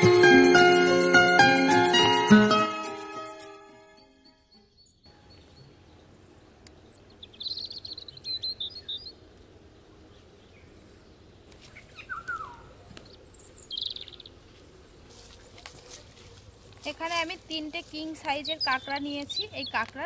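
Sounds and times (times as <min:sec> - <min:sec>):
birds chirping: 0:04.2 - 0:20.0.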